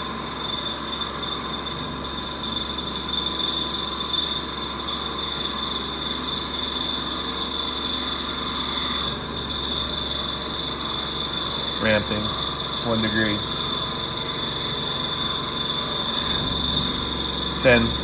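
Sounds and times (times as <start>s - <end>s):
milling spindle high whine: 0.0s - 18.0s
metal cutting noise: 7.0s - 18.0s.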